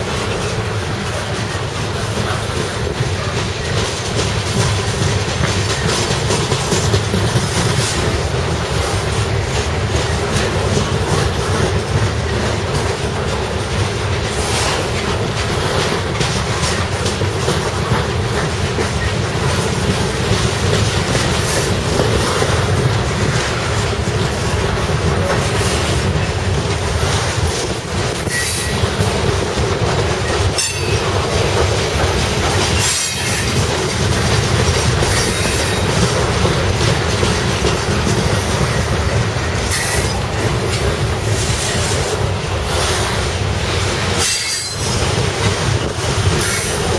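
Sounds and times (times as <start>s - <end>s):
freight train wheels rumbling on rails: 0.0s - 46.9s.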